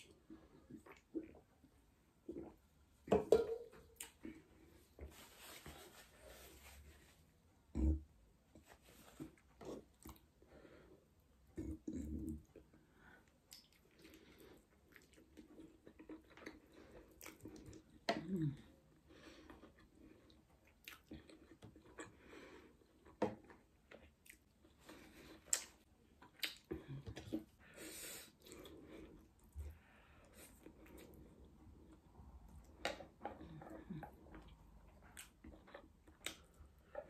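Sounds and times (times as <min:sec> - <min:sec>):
chewing and wet mouth clicks: 0:13.5 - 0:14.2, 0:14.8 - 0:17.9, 0:20.6 - 0:22.2, 0:25.4 - 0:26.7, 0:34.3 - 0:36.6.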